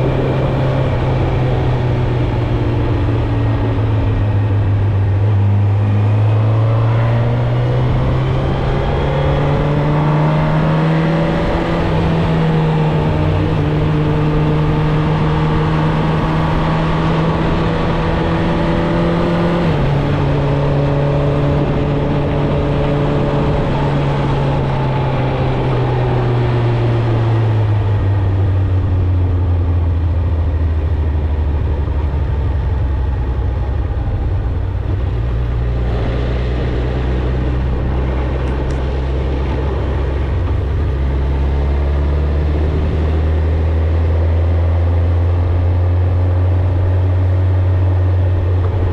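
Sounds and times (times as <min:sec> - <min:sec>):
motorcycle engine and exhaust: 0:00.0 - 0:48.9.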